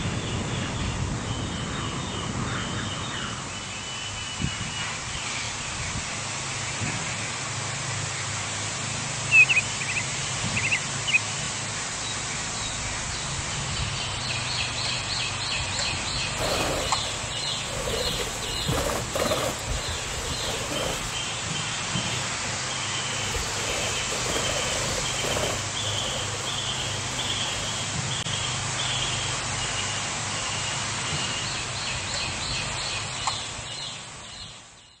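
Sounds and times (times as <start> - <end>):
birds calling: 16.2 - 28.2.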